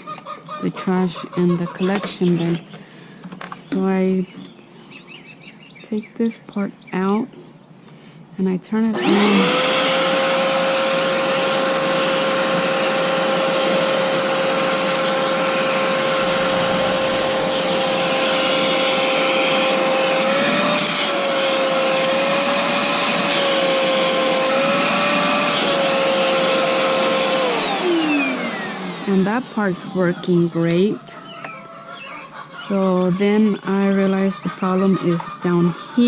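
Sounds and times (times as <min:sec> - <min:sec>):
vacuum cleaner motor running: 0:08.9 - 0:31.6.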